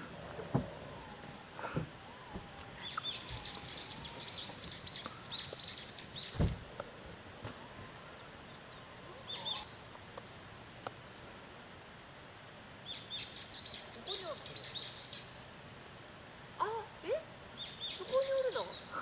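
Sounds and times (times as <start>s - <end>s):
songbird chirping: 0.0s - 11.4s, 12.8s - 19.0s
thump: 0.4s - 0.8s, 6.3s - 6.6s.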